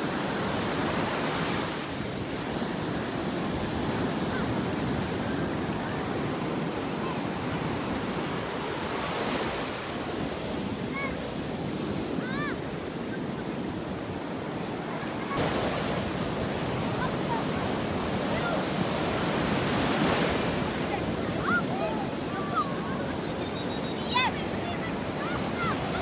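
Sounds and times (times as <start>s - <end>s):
waves breaking on a beach: 0.0s - 26.0s
faint high calls: 21.4s - 26.0s.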